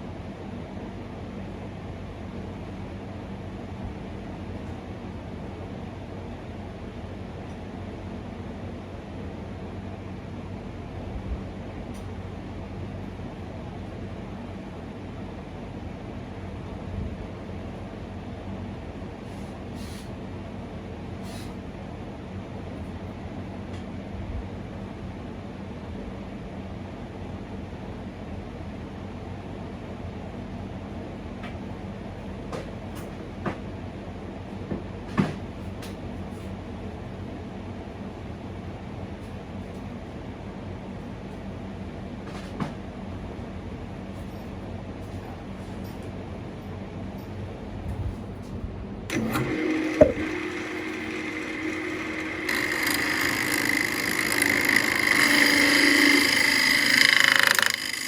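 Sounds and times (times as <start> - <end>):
mechanical hum: 0.0 - 58.0
knocks and clicks: 49.1 - 58.0
lathe motor running: 49.1 - 58.0.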